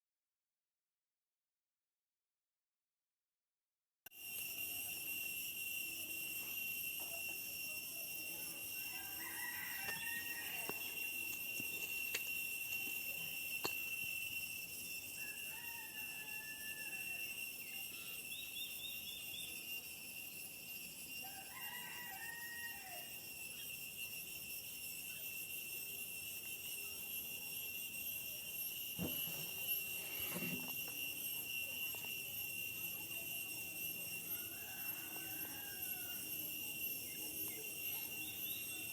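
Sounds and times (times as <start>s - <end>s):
high-pitched insect drone: 4.1s - 38.9s
rooster crowing: 8.6s - 13.0s, 14.6s - 17.6s, 21.2s - 23.5s, 33.4s - 38.9s.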